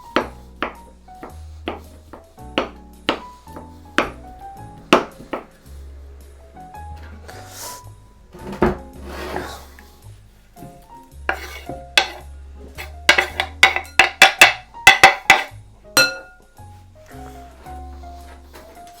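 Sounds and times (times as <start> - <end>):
background music: 0.0 - 19.0
utensil striking a bowl: 2.6 - 3.3, 4.9 - 5.5, 11.3 - 16.5
utensil scraping: 7.0 - 16.4.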